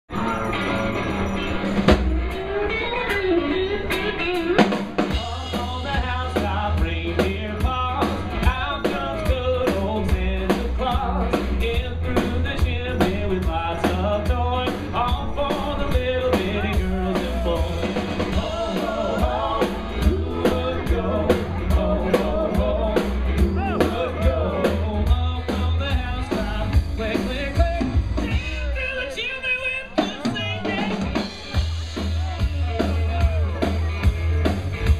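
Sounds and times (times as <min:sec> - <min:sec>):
heavy bass line: 0:00.1 - 0:29.1, 0:30.2 - 0:34.9
live rock band playing: 0:00.1 - 0:34.9
person singing: 0:05.1 - 0:31.2.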